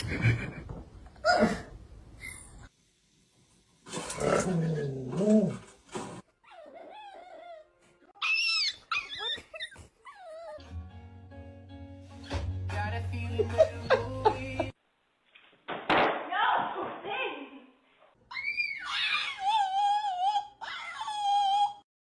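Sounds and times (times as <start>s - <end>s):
dog whining and yipping: 6.4s - 10.6s, 18.3s - 21.8s
background music: 10.6s - 14.8s.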